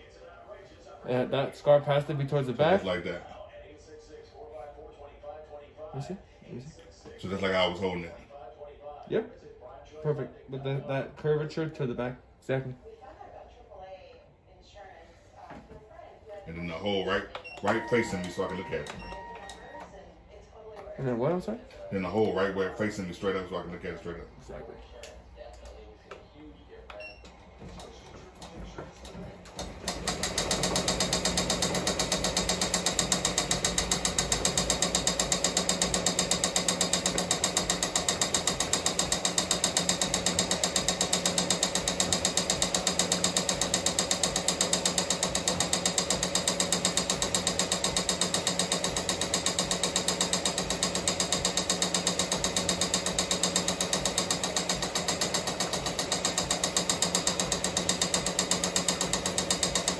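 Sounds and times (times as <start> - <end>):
embroidery machine stitching: 17.5 - 19.8, 27.8 - 59.9
machine hum: 27.8 - 59.9.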